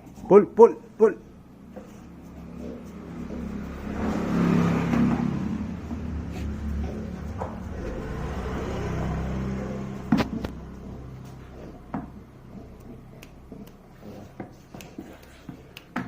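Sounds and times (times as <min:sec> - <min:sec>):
vehicle engine running: 0:01.4 - 0:13.5.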